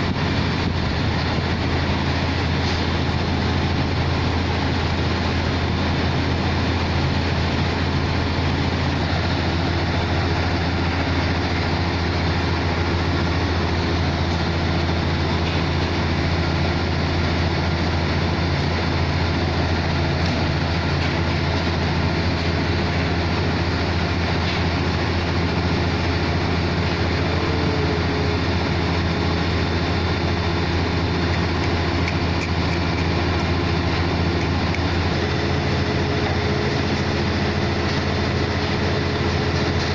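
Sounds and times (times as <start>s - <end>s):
air compressor engine droning: 0.0s - 39.9s.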